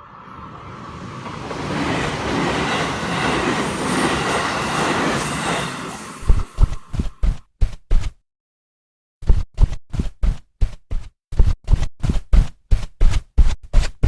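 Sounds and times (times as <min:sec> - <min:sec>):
train passing rumble: 0:00.0 - 0:07.2.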